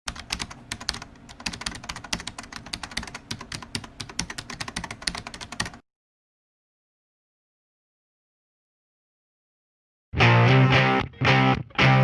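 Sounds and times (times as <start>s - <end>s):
fast typing on keyboard: 0.1s - 5.8s.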